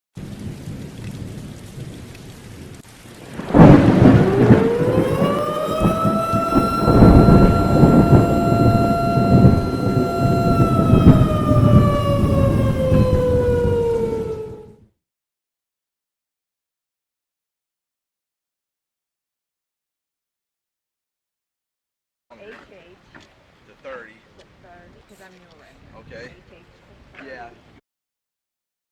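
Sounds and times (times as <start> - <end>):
loud rumbling noise: 3.4 - 14.8
mechanical siren wailing: 3.6 - 14.9.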